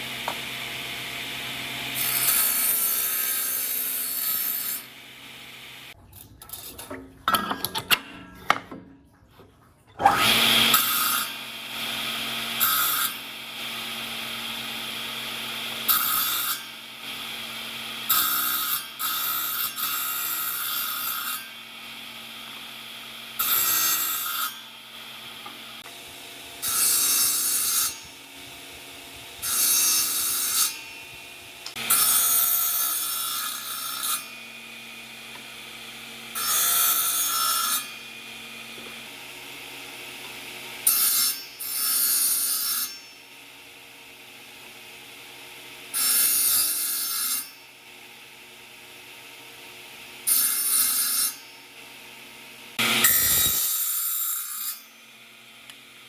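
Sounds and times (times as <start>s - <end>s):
tool working wood: 0.0s - 6.0s, 10.0s - 43.0s.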